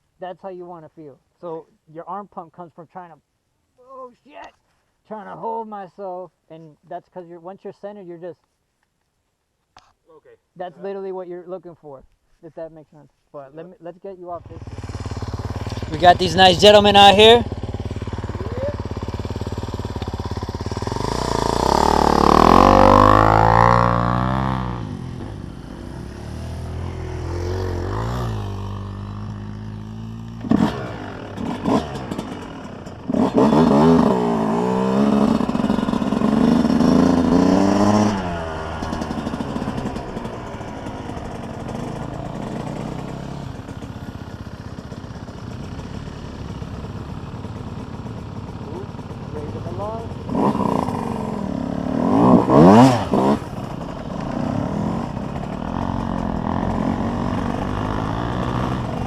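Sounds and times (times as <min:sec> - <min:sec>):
dirt bike engines revving: 0:14.4 - 0:59.0.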